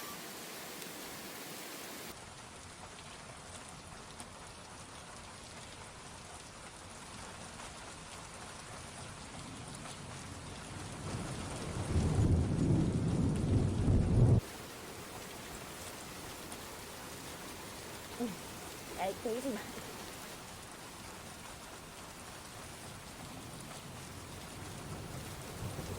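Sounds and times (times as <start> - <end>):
heavy rain: 0.0 - 25.9
loud deep rumble: 11.5 - 14.4.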